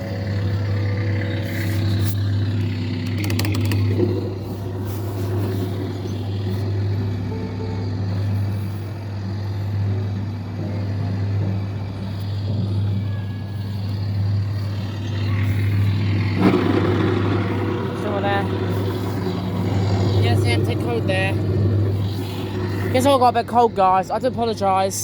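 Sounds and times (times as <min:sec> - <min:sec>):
kiddie ride droning: 0:00.0 - 0:25.0
sharp clicks: 0:01.4 - 0:04.3.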